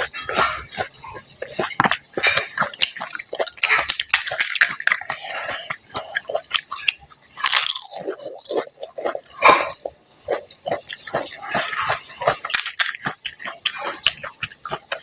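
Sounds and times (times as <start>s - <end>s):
wet chewing: 0.0s - 15.0s
crisp shells crunching: 7.4s - 8.5s, 12.3s - 13.2s.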